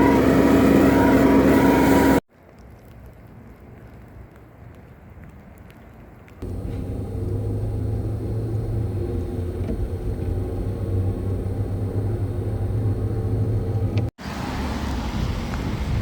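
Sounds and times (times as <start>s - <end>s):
noisy rumble: 6.4s - 14.1s
low engine hum: 6.4s - 16.0s.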